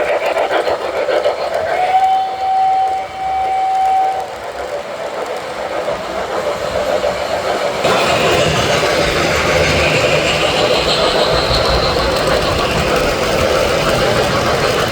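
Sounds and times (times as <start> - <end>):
model train running on track: 0.0 - 14.9
model train whistle: 1.6 - 4.4.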